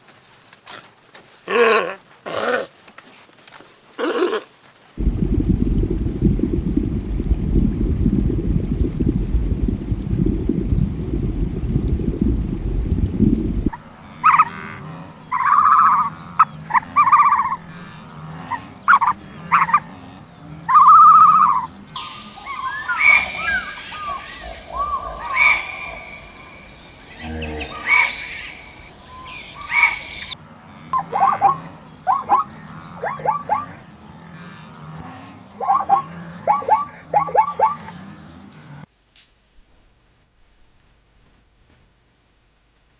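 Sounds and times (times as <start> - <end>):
ducks quacking: 13.7 - 38.0.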